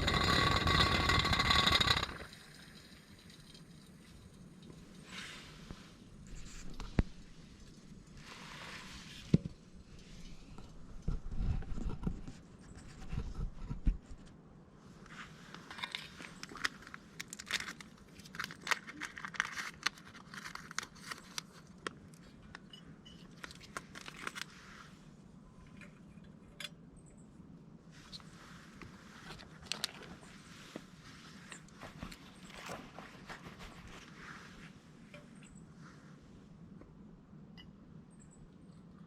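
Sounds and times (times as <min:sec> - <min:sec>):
packaging crinkling and rustling: 0:15.6 - 0:22.2, 0:23.3 - 0:24.5, 0:29.2 - 0:30.8.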